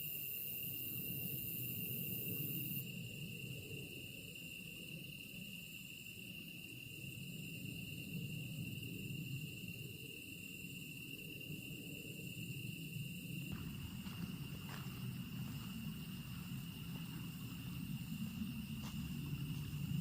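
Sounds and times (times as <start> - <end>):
grass insects chirring: 13.5 - 20.0
low background rumble: 13.5 - 20.0.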